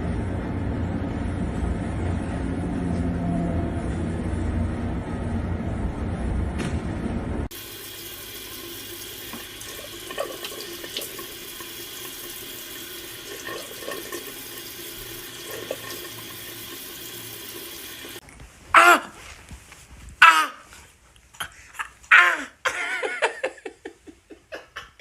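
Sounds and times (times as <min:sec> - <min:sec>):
tap water running into sink: 0:07.5 - 0:18.2.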